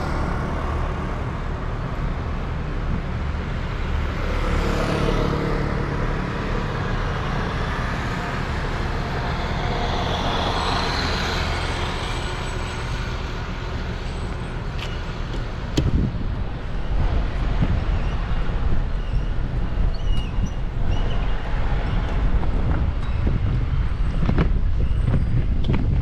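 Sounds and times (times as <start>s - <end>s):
road traffic: 0.0s - 26.0s
vehicle passing: 3.0s - 12.1s.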